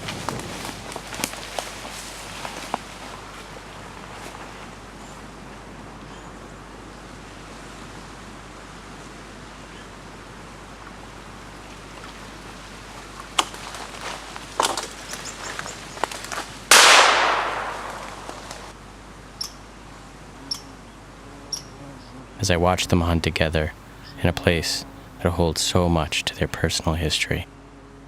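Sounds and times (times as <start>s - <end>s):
snapping and rustling in brush: 0.0s - 3.6s, 12.9s - 18.7s
shotgun shot: 16.7s - 18.7s.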